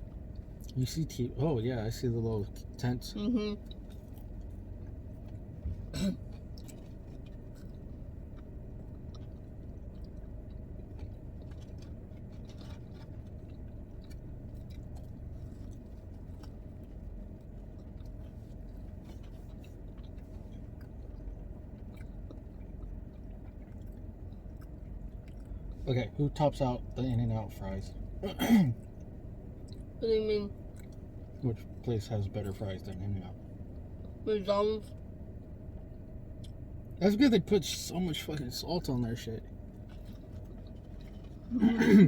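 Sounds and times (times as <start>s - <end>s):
steady low hum: 0.0s - 42.0s
person chewing and eating: 3.6s - 25.8s, 30.6s - 31.8s, 39.5s - 42.0s
faint clicks and crunches: 6.3s - 25.8s.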